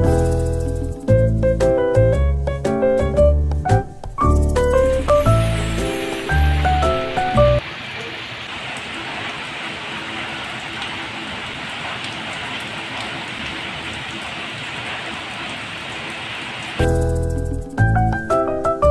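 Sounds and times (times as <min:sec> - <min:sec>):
background music: 0:00.0 - 0:07.6, 0:16.8 - 0:18.9
rain drop ticks: 0:04.6 - 0:18.3
steady rain hiss: 0:04.6 - 0:18.9.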